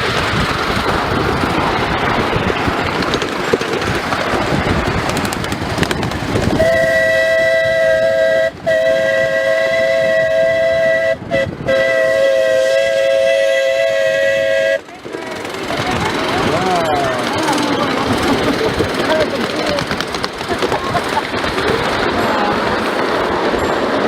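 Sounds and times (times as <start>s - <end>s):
moving train noise: 0.0s - 24.0s
steam locomotive whistle: 6.5s - 15.6s.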